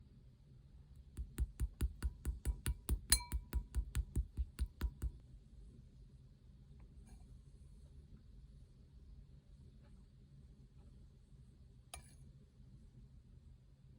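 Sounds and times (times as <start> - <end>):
hard taps on plastic container: 1.2 - 5.2.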